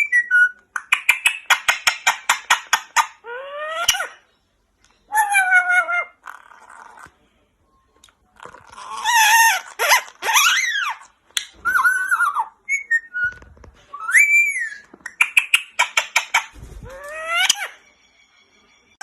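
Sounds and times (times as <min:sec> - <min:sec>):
parrot calls: 0:00.0 - 0:04.2, 0:05.1 - 0:07.0, 0:08.6 - 0:13.4, 0:14.0 - 0:17.8.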